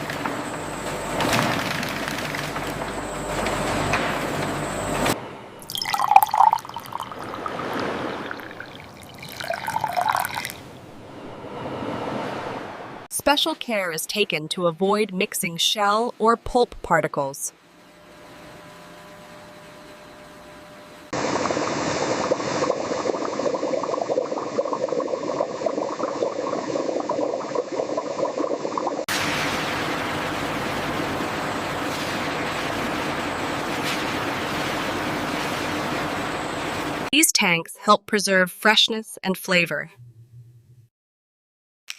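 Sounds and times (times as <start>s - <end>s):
machine hum: 0.0s - 7.5s, 17.5s - 26.6s, 29.1s - 37.1s
water splashing and dripping: 5.6s - 10.6s
liquid gushing and bubbling: 5.6s - 10.7s, 21.2s - 35.7s
smooth rushing liquid: 5.6s - 10.7s, 21.2s - 33.1s.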